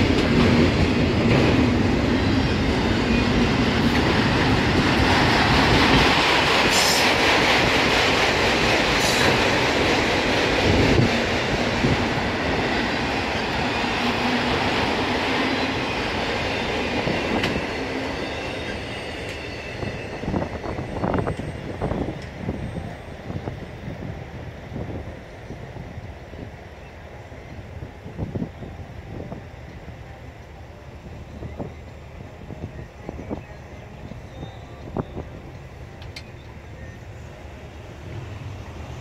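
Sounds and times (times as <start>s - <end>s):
train wheels rattling on rails: 0.0s - 26.9s.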